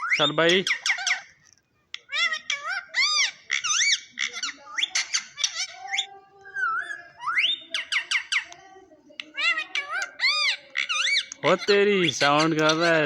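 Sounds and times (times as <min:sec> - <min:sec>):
parrot whistling and chirping: 0:00.0 - 0:01.3, 0:02.0 - 0:08.5.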